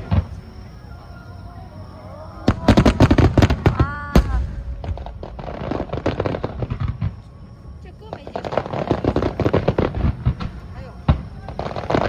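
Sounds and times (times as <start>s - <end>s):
fireworks cracking: 0.0s - 12.0s
firework bang: 2.4s - 7.3s.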